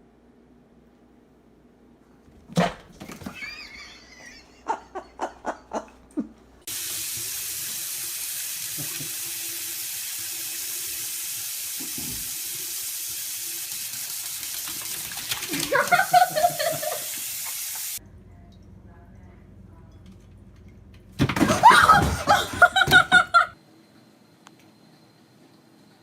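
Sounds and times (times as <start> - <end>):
tap water running: 6.6 - 18.0, 21.2 - 23.4.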